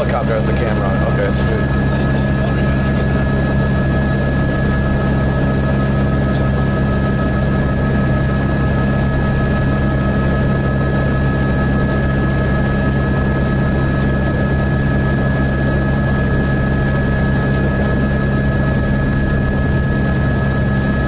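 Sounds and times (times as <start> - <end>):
helicopter engine and rotor drone: 0.0 - 21.0
thin high whine: 12.1 - 14.1.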